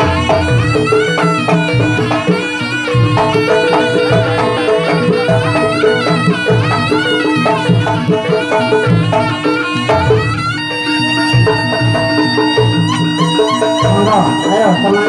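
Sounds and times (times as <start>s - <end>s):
drums with low beat: 0.0s - 10.3s
double-reed shawm melody: 0.0s - 15.0s
held notes: 0.0s - 15.0s.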